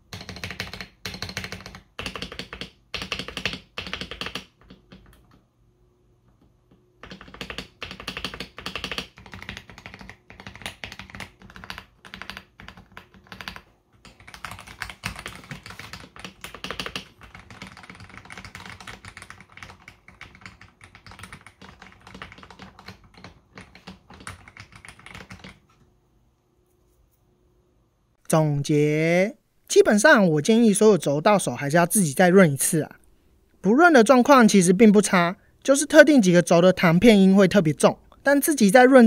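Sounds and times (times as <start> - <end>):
mechanical keyboard typing: 0.0 - 5.4, 6.7 - 25.6.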